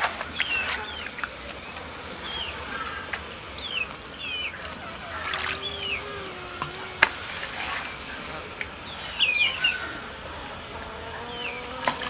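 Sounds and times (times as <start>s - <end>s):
small birds chirping: 0.0s - 12.0s
dough splashing in water: 11.7s - 12.0s.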